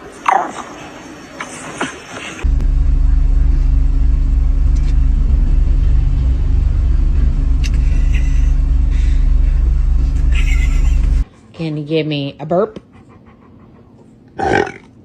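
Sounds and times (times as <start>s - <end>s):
loud low rumble with hum: 2.4s - 11.3s.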